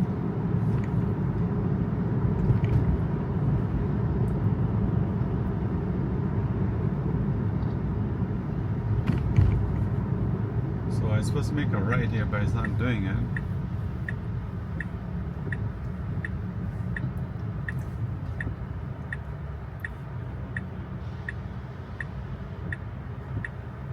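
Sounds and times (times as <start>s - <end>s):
tyre and road rumble: 8.6s - 11.0s.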